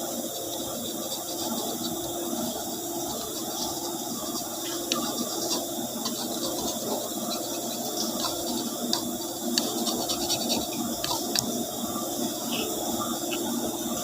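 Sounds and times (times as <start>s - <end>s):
drain pump hum: 0.0s - 14.0s
water gurgling: 0.0s - 14.0s
crackling clicks: 3.1s - 11.6s.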